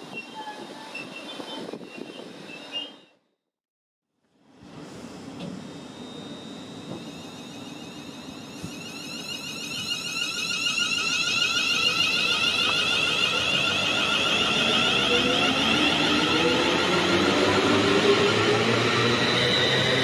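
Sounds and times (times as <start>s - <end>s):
train high-pitched whine: 4.5s - 20.0s.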